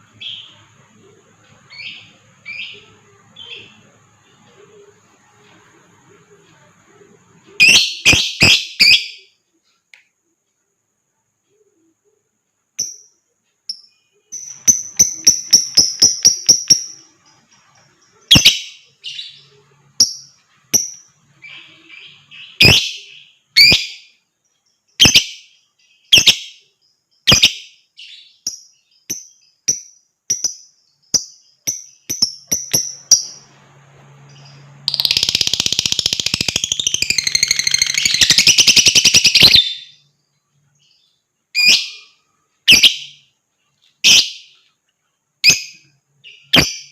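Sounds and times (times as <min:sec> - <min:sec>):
lovebird chirping and trilling: 0:00.1 - 0:00.9, 0:01.6 - 0:04.7, 0:07.5 - 0:09.3, 0:12.8 - 0:24.2, 0:24.8 - 0:26.6, 0:27.2 - 0:33.6, 0:34.2 - 0:40.1, 0:40.7 - 0:43.4, 0:44.0 - 0:44.7, 0:45.4 - 0:46.9.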